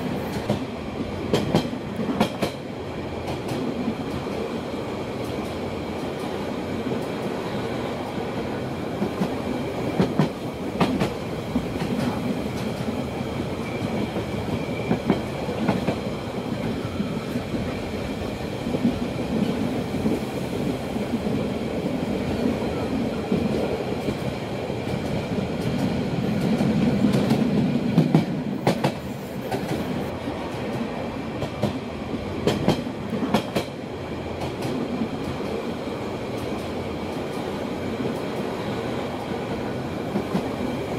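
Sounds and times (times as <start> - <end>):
clickety-clack of wheels: 1.3 - 2.6, 9.0 - 17.8, 23.3 - 29.9, 31.4 - 31.8, 32.4 - 33.8.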